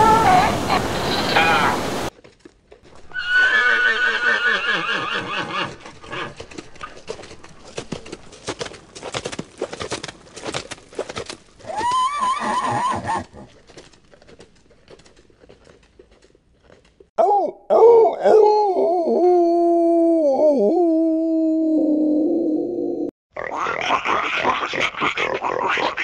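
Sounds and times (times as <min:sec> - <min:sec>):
horse hoofbeats galloping: 0:02.1 - 0:17.1
horse whinnying: 0:03.1 - 0:06.4, 0:11.6 - 0:13.5.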